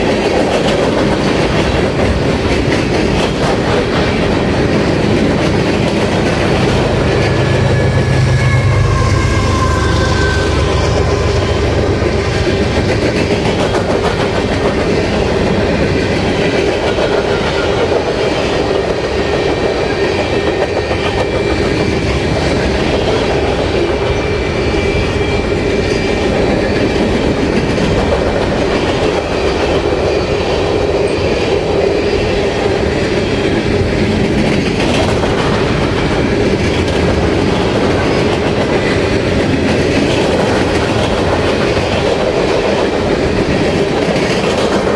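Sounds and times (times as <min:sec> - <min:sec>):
clickety-clack over rail joints: 0:00.0 - 0:07.4, 0:10.7 - 0:44.9
freight train rolling past: 0:00.0 - 0:44.9
whining wheels: 0:04.1 - 0:14.4.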